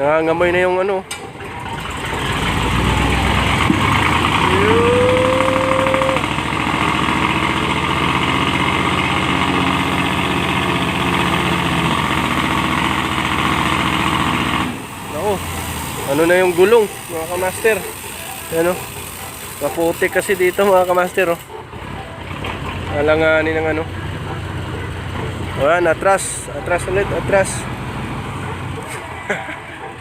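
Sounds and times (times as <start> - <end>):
truck engine at high revs: 0.0 - 30.0
wheels spinning in mud: 1.6 - 23.3
brief rising tone: 4.4 - 6.3.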